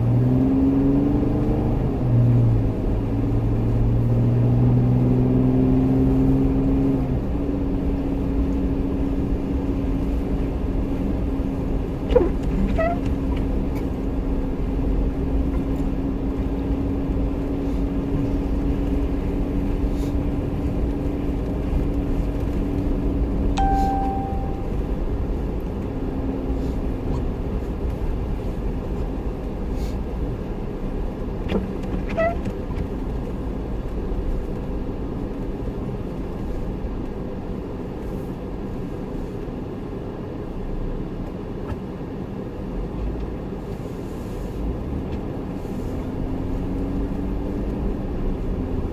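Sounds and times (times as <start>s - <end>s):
vehicle engine rumble: 0.0s - 48.9s
short high beep: 23.6s - 24.8s.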